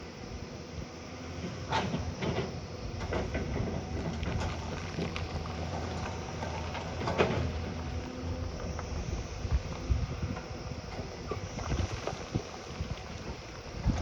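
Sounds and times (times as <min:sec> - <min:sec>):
heavy machine engine running: 0:00.0 - 0:14.0
knocks and clanks: 0:01.7 - 0:05.3.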